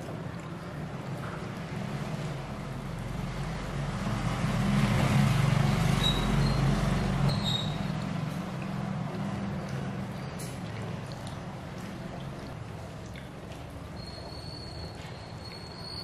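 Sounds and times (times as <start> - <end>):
vehicle engine rumbling: 1.7 - 10.2.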